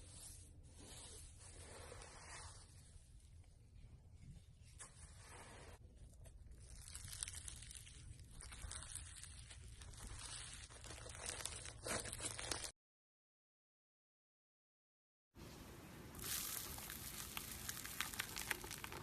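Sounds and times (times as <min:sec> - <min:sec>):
slime squelching with crackles: 0:06.0 - 0:12.7, 0:16.2 - 0:19.0.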